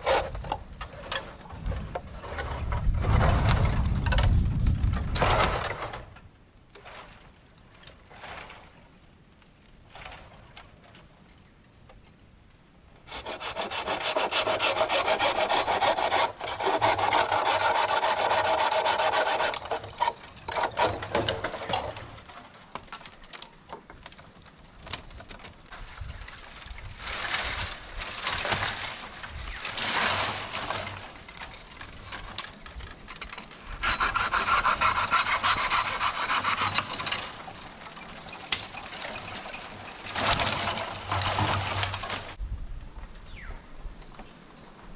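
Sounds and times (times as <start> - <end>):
saw cutting through wood: 13.1 - 21.7, 33.7 - 37.5.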